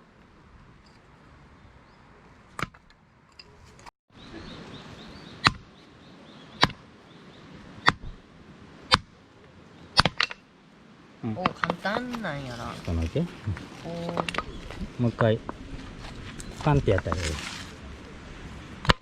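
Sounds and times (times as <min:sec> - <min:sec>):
axe chopping firewood: 0:05.4 - 0:05.7, 0:06.6 - 0:06.8, 0:07.8 - 0:08.1, 0:08.9 - 0:09.1, 0:10.0 - 0:10.4.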